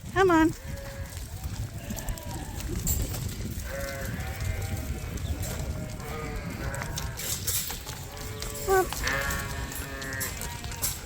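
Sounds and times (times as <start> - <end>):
lambs bleating: 0.4 - 1.1, 3.6 - 7.2, 8.1 - 10.9.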